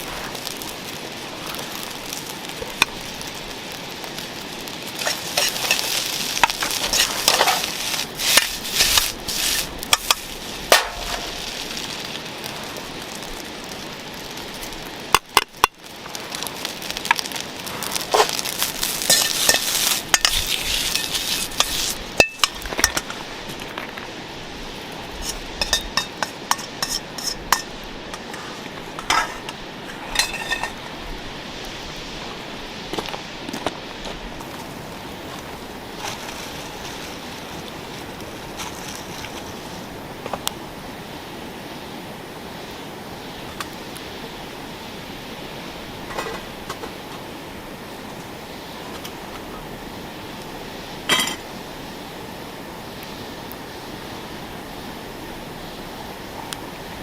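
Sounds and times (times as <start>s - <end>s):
rice sizzling in a pan: 0.0s - 57.0s
metal utensil scraping a pan: 5.0s - 11.4s, 18.1s - 23.0s, 25.2s - 30.8s.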